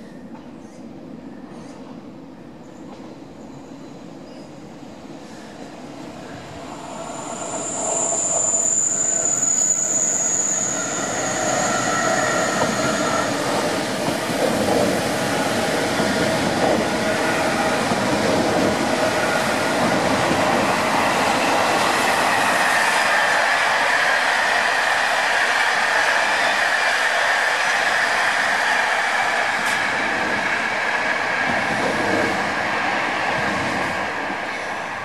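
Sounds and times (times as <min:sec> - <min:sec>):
second train passing: 0:00.0 - 0:35.0
train wheels rushing on rail: 0:02.8 - 0:03.8, 0:04.8 - 0:35.0
high thin squeal: 0:06.7 - 0:13.4.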